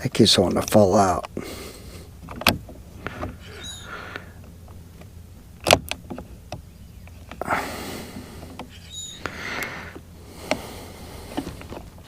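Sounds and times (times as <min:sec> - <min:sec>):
sharp clicks: 0:02.2 - 0:07.5, 0:08.4 - 0:10.7
brief high squeak: 0:03.5 - 0:03.9, 0:08.7 - 0:09.2
scraping and rustling: 0:08.1 - 0:12.0.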